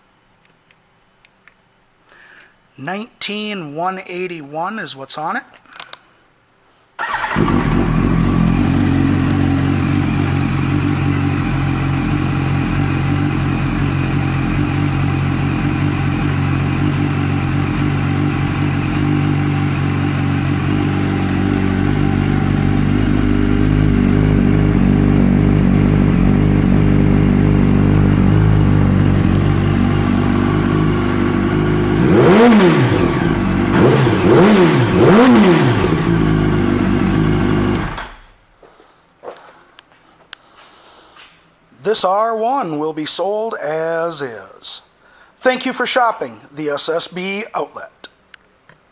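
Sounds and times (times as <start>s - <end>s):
motorcycle engine idling: 7.0s - 38.2s
motorcycle engine revving: 7.0s - 38.3s.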